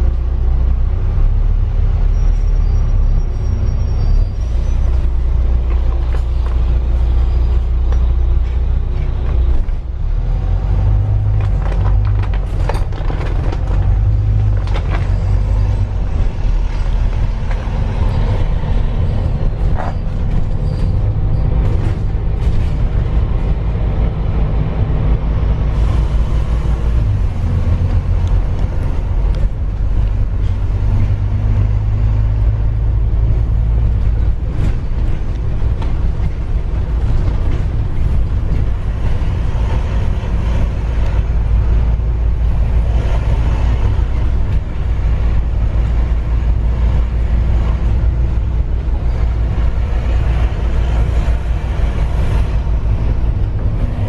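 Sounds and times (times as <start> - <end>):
vehicle low rumble: 0.0 - 54.0.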